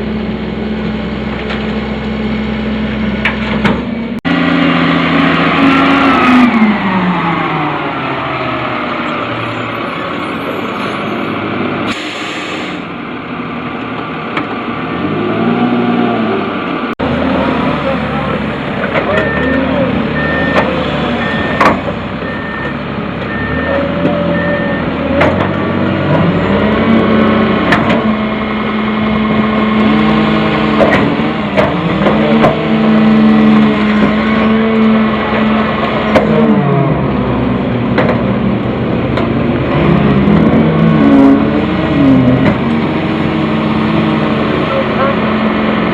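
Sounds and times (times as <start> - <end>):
truck engine revving: 0.0 - 11.9, 12.8 - 45.9
reversing alarm beeping: 19.2 - 21.6, 22.2 - 24.9.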